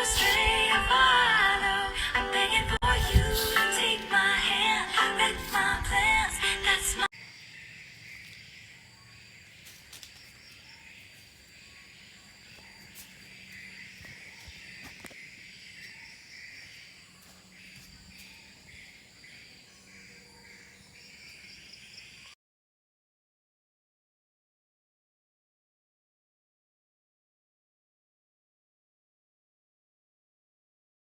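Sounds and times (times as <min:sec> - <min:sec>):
crickets chirping: 0:07.1 - 0:22.4.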